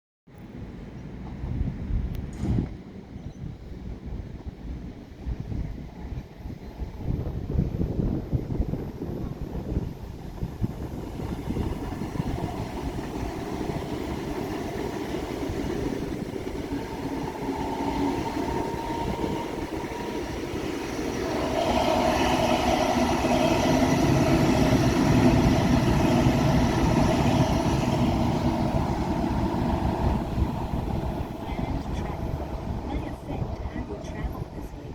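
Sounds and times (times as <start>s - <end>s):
train rumbling on tracks: 0.4s - 34.9s
steady tones: 10.8s - 34.9s.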